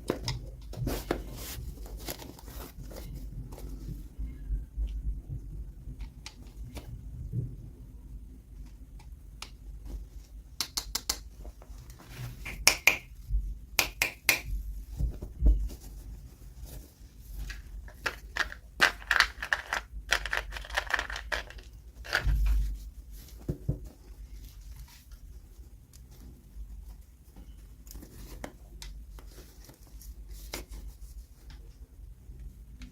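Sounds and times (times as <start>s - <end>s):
sharp clicks and taps: 10.6s - 11.3s, 12.4s - 13.1s, 13.8s - 14.5s
packaging crinkling and tearing: 17.5s - 22.4s.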